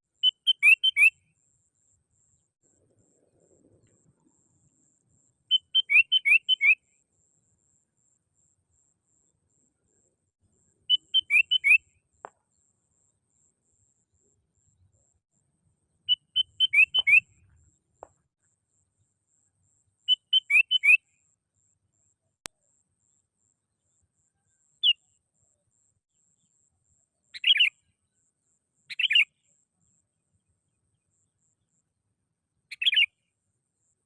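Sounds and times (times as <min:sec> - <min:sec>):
bulbul whistled song: 0:00.2 - 0:01.3, 0:05.5 - 0:07.0, 0:10.9 - 0:12.0, 0:16.1 - 0:17.6, 0:20.1 - 0:21.2, 0:27.4 - 0:27.8, 0:28.9 - 0:29.4, 0:32.7 - 0:33.2
faint click: 0:03.3 - 0:04.4.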